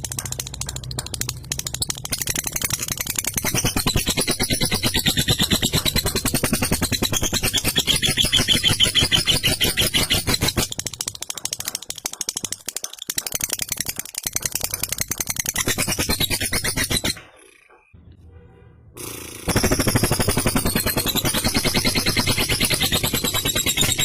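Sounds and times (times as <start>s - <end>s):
lovebird rattling chatter: 0.0s - 17.9s, 19.4s - 24.0s.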